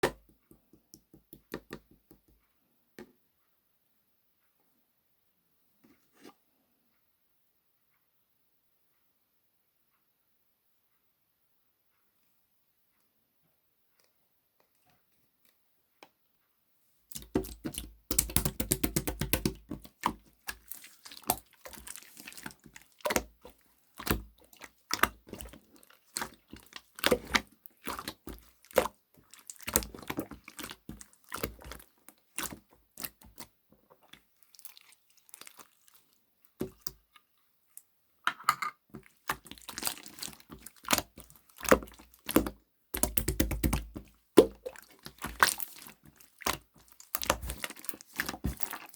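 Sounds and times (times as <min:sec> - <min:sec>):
slime squished by hand: 0:17.1 - 0:37.1, 0:39.0 - 0:48.9.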